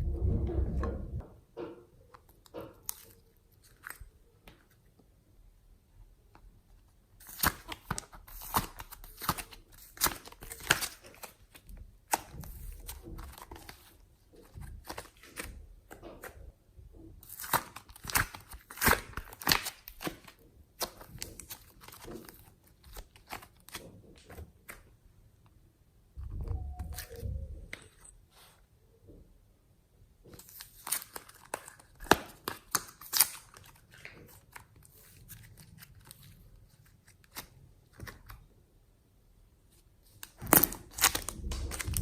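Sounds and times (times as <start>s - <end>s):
soft low thud: 0.0s - 1.4s.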